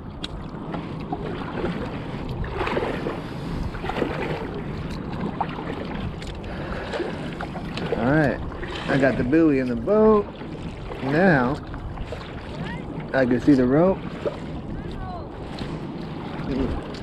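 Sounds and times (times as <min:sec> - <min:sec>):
water lapping around kayak: 0:00.0 - 0:17.0
wind buffeting microphone: 0:00.0 - 0:17.0.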